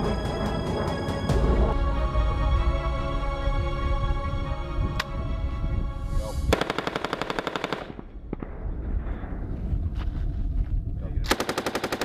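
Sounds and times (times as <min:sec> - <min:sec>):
low rumble: 0:00.0 - 0:06.7, 0:07.9 - 0:11.3
automatic gunfire: 0:06.5 - 0:08.1, 0:11.3 - 0:12.0.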